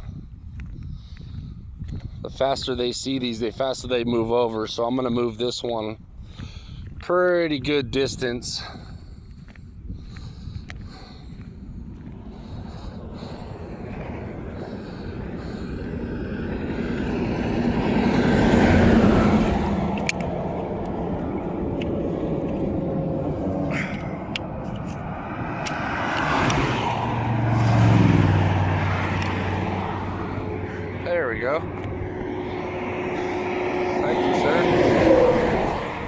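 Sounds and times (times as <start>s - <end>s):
highway traffic passing: 6.0s - 36.0s
vehicle engine drone: 8.2s - 36.0s.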